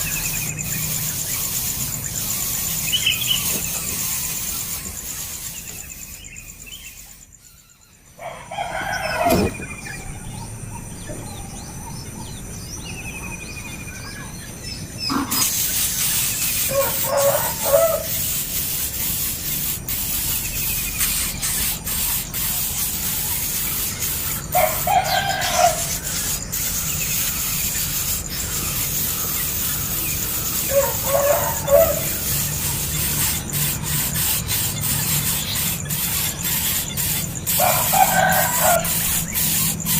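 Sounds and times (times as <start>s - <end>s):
faint bird chirps: 0.0s - 19.2s
steady hiss: 15.1s - 39.9s
bird calling loudly: 30.2s - 33.3s.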